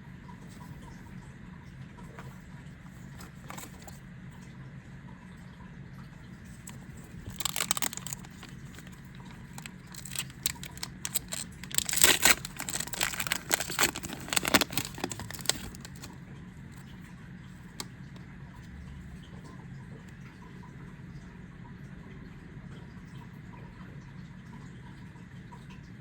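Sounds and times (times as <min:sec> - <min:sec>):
foil wrapper crinkling and tearing: 0:03.2 - 0:03.9, 0:06.6 - 0:16.2.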